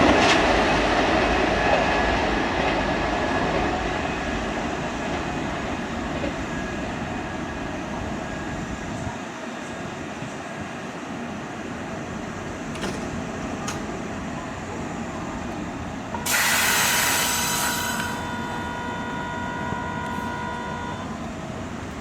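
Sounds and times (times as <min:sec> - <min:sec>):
train rumble: 0:00.0 - 0:22.0
multi-tone whine: 0:15.6 - 0:22.0
loud hiss: 0:16.2 - 0:19.2.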